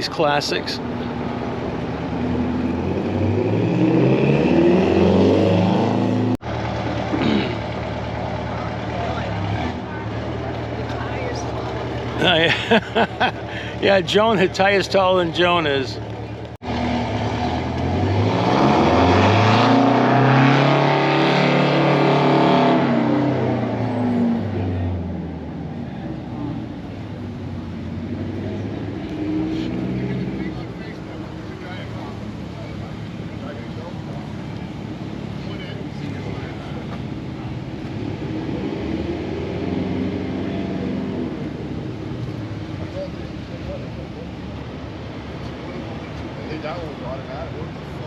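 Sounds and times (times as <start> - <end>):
passing vehicle engine: 0.0 - 48.0
vehicle engine accelerating past: 2.1 - 7.1, 16.6 - 31.0.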